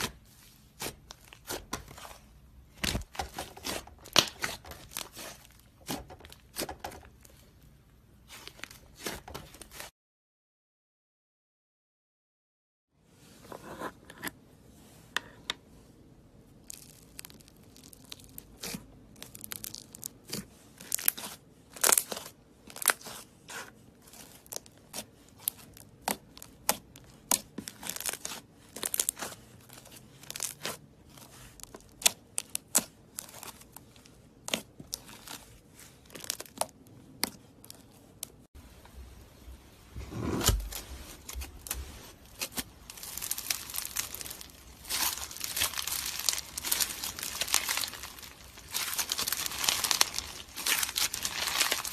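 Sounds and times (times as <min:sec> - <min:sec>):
deep slime squish: 0:00.0 - 0:09.9, 0:16.6 - 0:38.5, 0:39.3 - 0:51.9
slime crackling and popping: 0:02.7 - 0:06.8, 0:16.6 - 0:23.2, 0:24.1 - 0:33.7, 0:36.0 - 0:38.4, 0:40.4 - 0:51.9.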